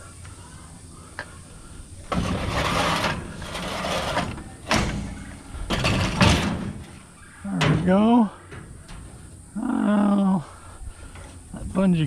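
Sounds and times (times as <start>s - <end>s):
scrap metal scraping and rustling: 2.0s - 9.6s, 10.9s - 11.5s.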